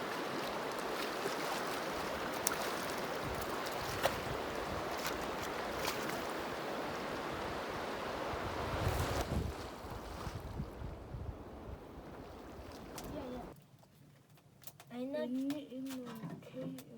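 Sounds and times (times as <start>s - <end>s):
river water rushing: 0.0s - 9.2s.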